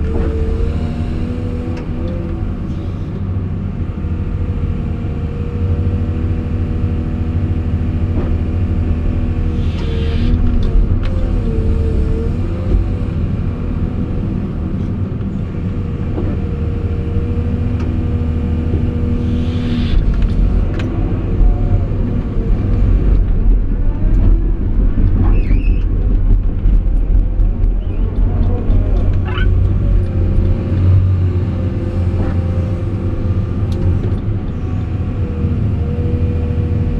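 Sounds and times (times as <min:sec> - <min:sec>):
excavator diesel engine rumbling: 0:00.0 - 0:36.9.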